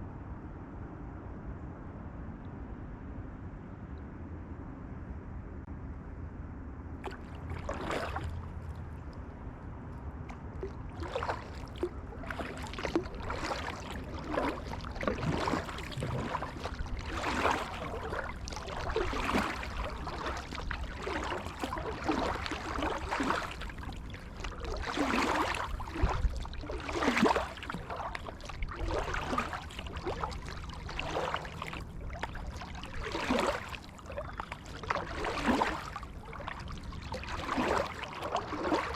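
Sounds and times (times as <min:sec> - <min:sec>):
steady low rumble: 0:00.0 - 0:38.9
paddle splashing in water: 0:07.0 - 0:09.2, 0:10.3 - 0:38.9.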